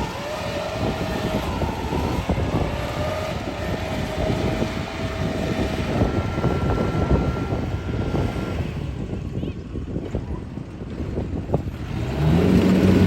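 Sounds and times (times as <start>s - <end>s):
combine harvester running: 0.0s - 13.0s
faint thin whine: 0.8s - 9.6s.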